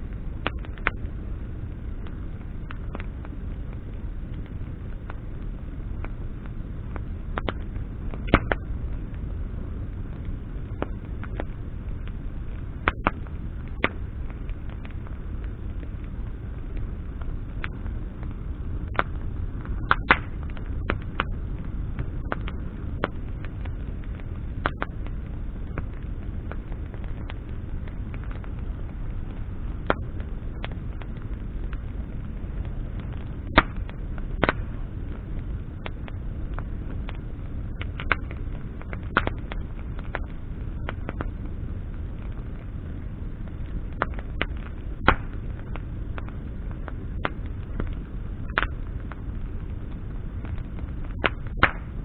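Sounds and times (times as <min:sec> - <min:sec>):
bonfire crackling and popping: 0:00.0 - 0:52.0
low fire rumble: 0:00.0 - 0:52.0.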